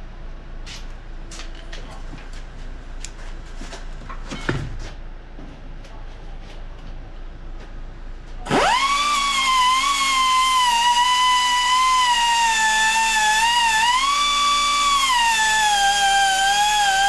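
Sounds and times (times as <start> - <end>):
electric grinder whining: 8.5 - 17.0.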